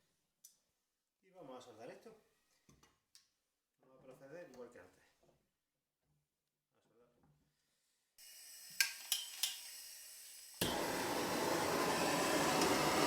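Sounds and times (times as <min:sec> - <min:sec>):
gas hissing: 0:08.2 - 0:13.0
torch flame rushing: 0:10.6 - 0:13.0.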